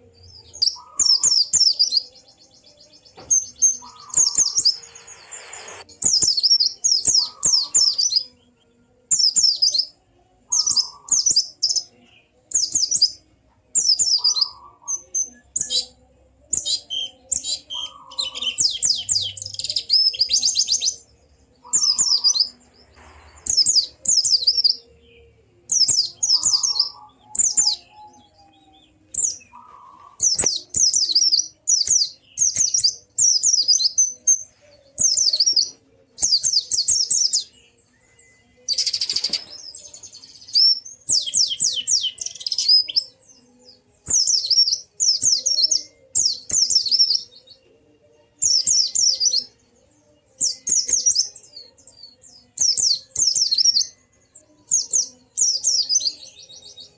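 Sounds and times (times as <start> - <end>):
bird twittering: 3.4 - 8.2, 16.6 - 21.0, 21.6 - 24.8, 29.2 - 43.0.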